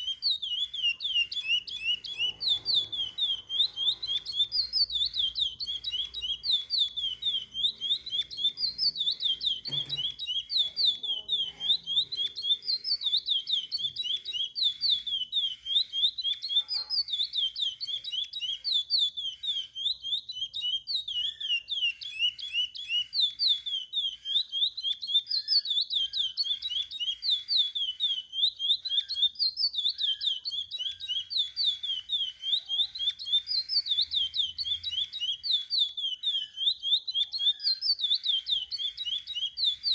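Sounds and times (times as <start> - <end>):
finch singing whistled notes: 0.0 - 39.9.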